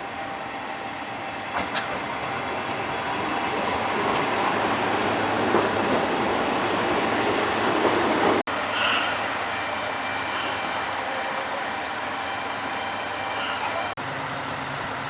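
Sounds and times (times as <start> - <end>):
railcar rumbling on rails: 0.0 - 15.0
engine running with held tones: 13.5 - 15.0.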